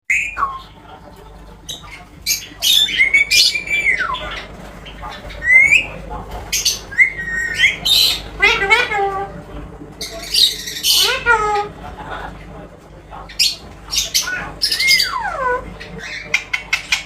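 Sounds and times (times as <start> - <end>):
parrot squawking: 1.7 - 9.4, 10.0 - 11.9, 13.2 - 17.0.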